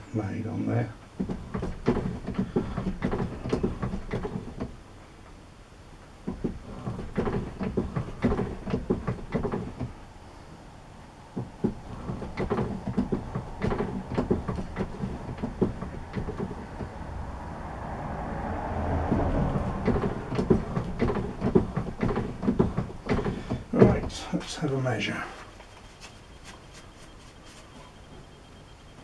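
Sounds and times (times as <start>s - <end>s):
clatter of clicks and knocks: 1.0s - 5.4s, 6.0s - 10.0s, 11.4s - 24.3s.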